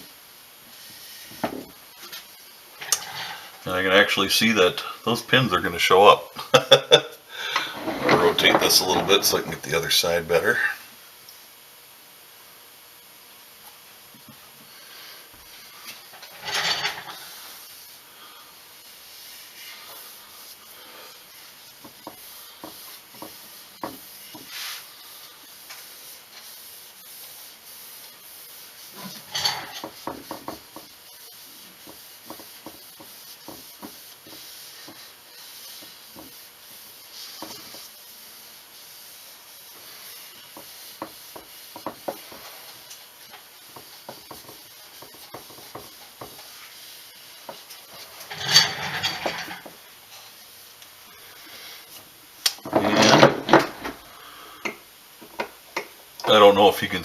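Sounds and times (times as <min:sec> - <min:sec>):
rag rubbing wooden stock: 0:18.9 - 0:50.4.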